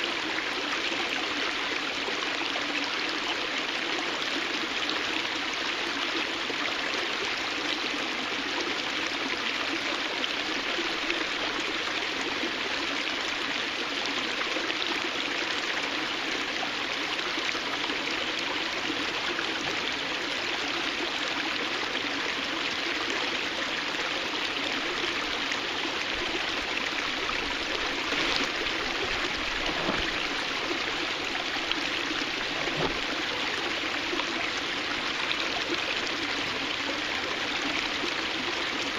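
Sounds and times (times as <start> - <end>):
water cascading over rock: 24.8 - 38.9.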